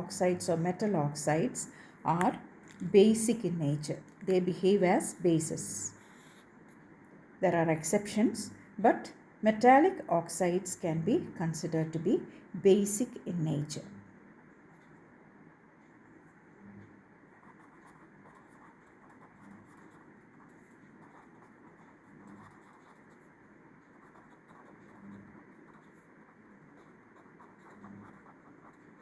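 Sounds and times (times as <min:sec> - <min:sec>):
pen scratching while writing: 0:17.4 - 0:29.0.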